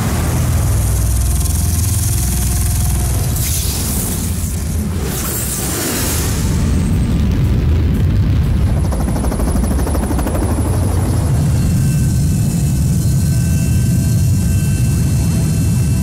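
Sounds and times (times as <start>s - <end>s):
high whining tones: 0.0s - 5.6s.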